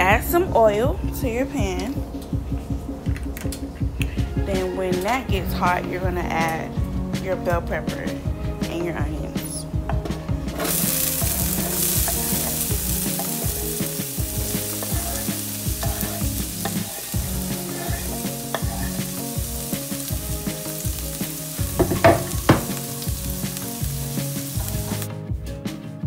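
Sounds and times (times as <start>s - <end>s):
vegetables sizzling in oil: 10.6s - 25.1s
sharp knocks: 21.8s - 22.8s.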